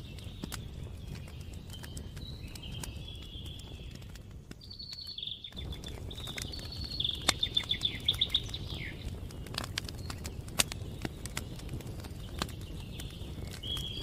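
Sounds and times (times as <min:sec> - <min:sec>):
campfire crackling and popping: 0:00.0 - 0:14.0
songbird trilling: 0:04.7 - 0:09.1.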